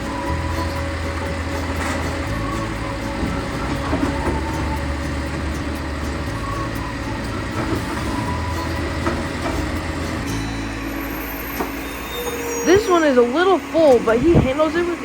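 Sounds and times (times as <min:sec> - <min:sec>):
garbage truck engine humming: 0:00.0 - 0:15.0.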